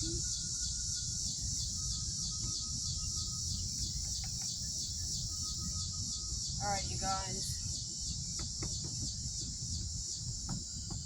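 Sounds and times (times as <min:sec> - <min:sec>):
faint thin whistle: 0:00.0 - 0:06.5
insects chirring: 0:00.0 - 0:11.0
low background rumble: 0:00.0 - 0:11.0.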